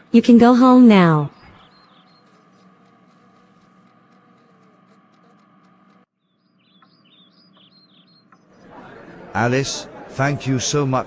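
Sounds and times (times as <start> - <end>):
small birds chirping: 1.0 - 9.1.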